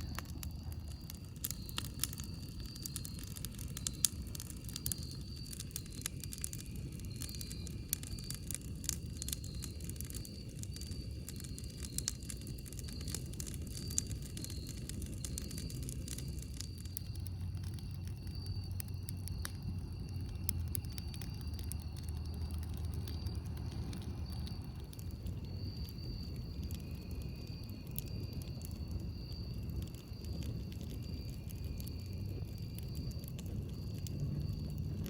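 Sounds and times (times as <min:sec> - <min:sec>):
campfire crackling and popping: 0:00.0 - 0:35.0
high insect trill: 0:00.0 - 0:35.0.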